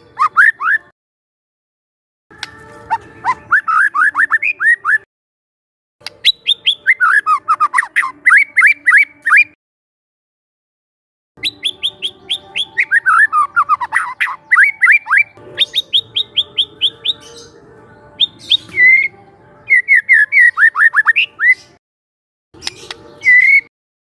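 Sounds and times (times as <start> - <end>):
bird singing: 0.0 - 0.9, 2.4 - 5.0, 6.0 - 9.6, 11.4 - 21.8, 22.6 - 23.7.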